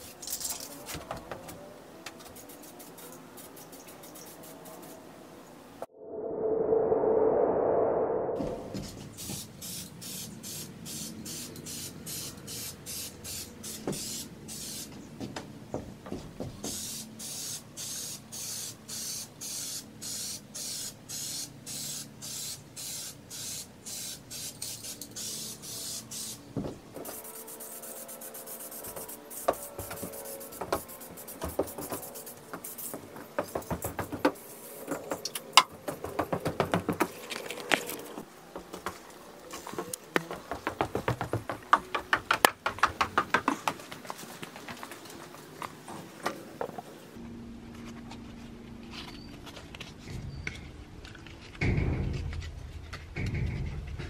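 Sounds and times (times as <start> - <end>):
aerosol spray can hissing: 9.2 - 14.9, 16.7 - 26.4, 27.1 - 33.0.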